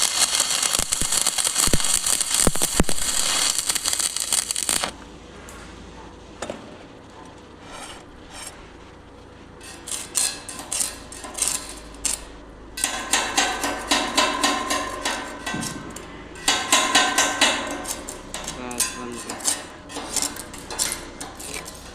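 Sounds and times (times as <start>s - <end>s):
hammer striking steel: 12.8s - 21.9s.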